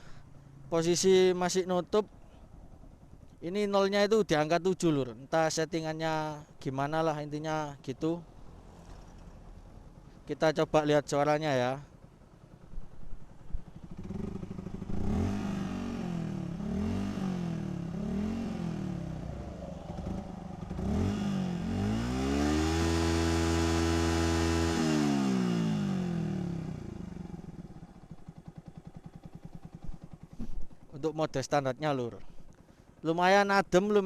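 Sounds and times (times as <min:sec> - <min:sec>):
motorcycle engine revving: 0:08.2 - 0:10.3, 0:11.8 - 0:31.4.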